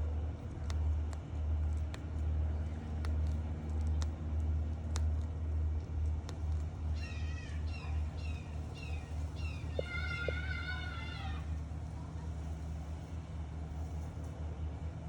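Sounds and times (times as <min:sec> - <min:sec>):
low hum: 0:00.0 - 0:14.5
bird calling: 0:06.9 - 0:11.6.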